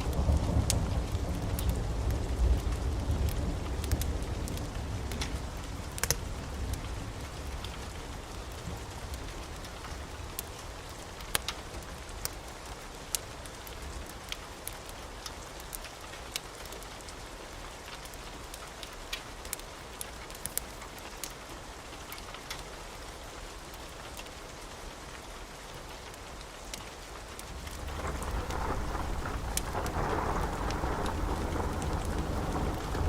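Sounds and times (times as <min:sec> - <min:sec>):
thunder rumble: 0:00.0 - 0:10.4, 0:27.6 - 0:33.0
steady rain: 0:00.0 - 0:33.0
wood fire crackles: 0:00.0 - 0:33.0.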